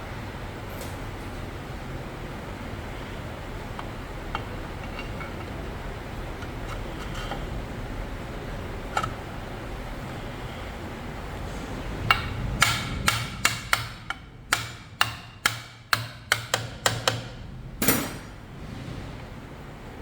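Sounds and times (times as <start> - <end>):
hammer striking metal: 12.1 - 18.4.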